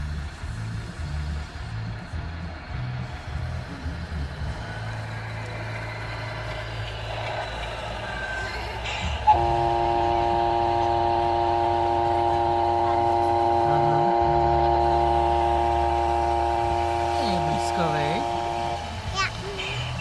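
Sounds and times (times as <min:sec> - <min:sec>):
model truck motor hum: 0:00.0 - 0:20.0
loud horn-like tone: 0:09.2 - 0:19.1.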